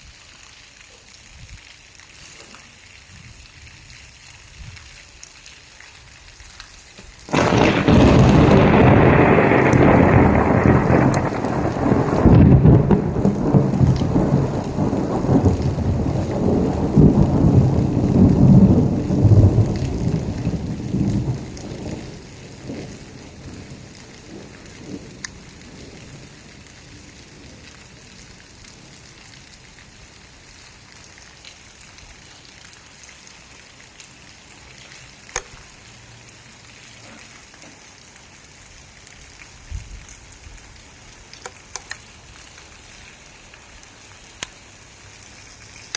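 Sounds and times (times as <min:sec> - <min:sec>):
steady rain: 0:00.0 - 0:45.9
thunder rumbling: 0:07.3 - 0:29.0.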